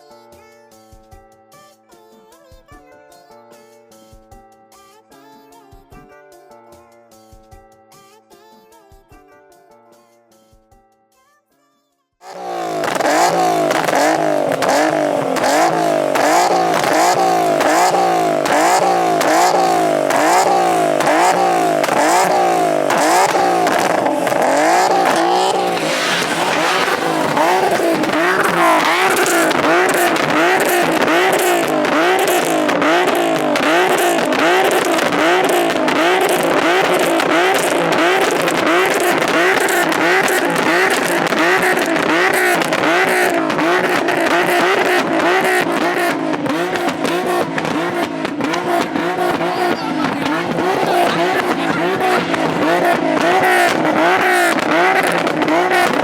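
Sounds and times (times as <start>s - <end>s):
car engine revving: 12.2s - 56.0s.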